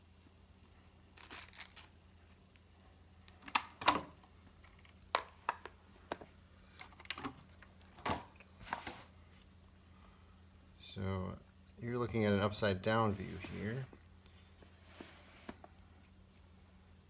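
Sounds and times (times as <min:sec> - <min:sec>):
packaging rustling: 0:01.2 - 0:02.0.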